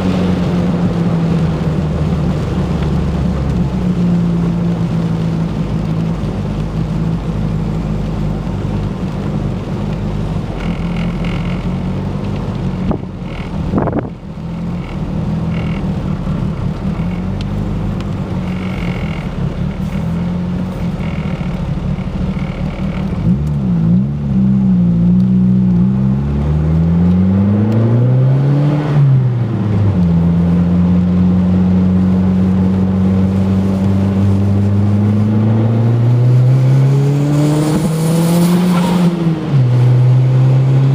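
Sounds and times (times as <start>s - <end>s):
car engine running unevenly: 0.0s - 25.8s.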